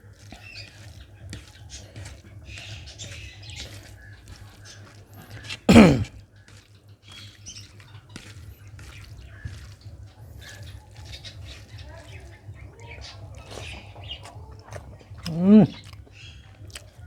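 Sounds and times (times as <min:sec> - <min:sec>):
wet chewing and lip smacks: 0:00.1 - 0:05.7, 0:06.5 - 0:17.0
short falling vocal sound: 0:05.7 - 0:06.0, 0:15.3 - 0:15.8.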